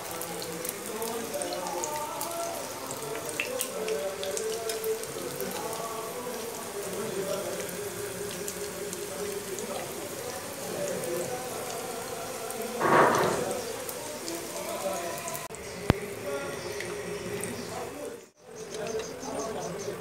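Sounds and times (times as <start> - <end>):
food sizzling in hot oil: 0.0 - 19.6
spattering oil pops: 12.7 - 14.5.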